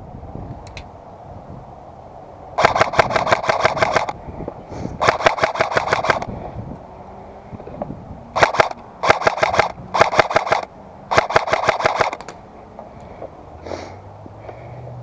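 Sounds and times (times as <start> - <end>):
airsoft gun firing bursts: 2.6 - 4.2, 5.0 - 6.3, 8.4 - 12.3.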